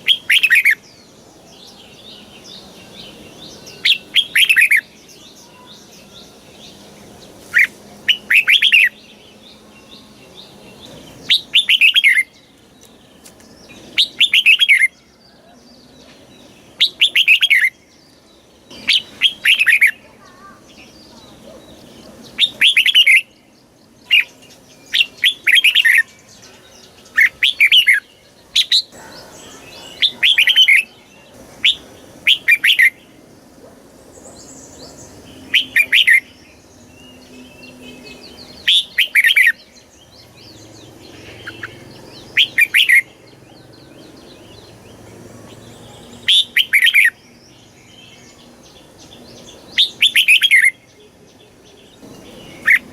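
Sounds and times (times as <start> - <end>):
bird singing bright phrases: 0.0 - 52.9.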